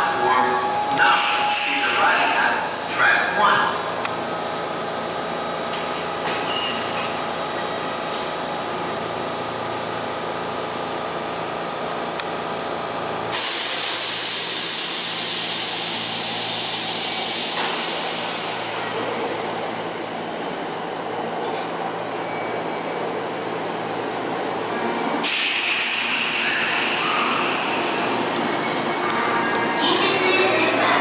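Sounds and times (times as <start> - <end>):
electric train humming: 0.0 - 22.2, 23.1 - 31.0
train air hiss: 13.3 - 18.8, 25.2 - 28.3.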